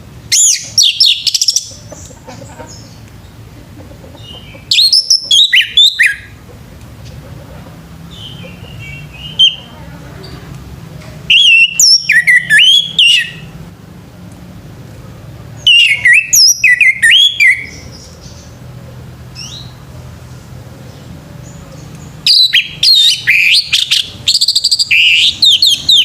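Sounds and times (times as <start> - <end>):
thrush singing whistles: 0.3 - 1.7, 4.7 - 6.3, 8.1 - 9.7, 11.3 - 13.5, 15.6 - 17.9, 22.2 - 26.0.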